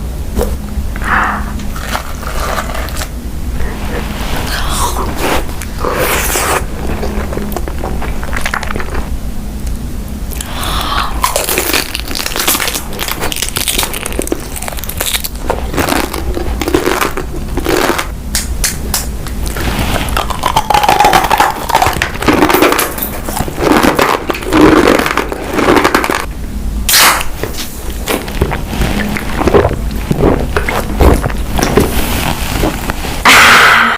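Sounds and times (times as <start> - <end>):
food crunching while chewed: 5.6 - 9.1, 10.3 - 18.1, 19.3 - 26.3, 26.9 - 32.2.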